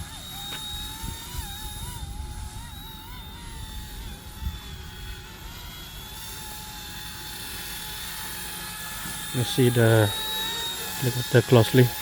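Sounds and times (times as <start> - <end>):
wind on microphone: 0.0 - 5.8
rc helicopter motor whine: 0.0 - 12.0.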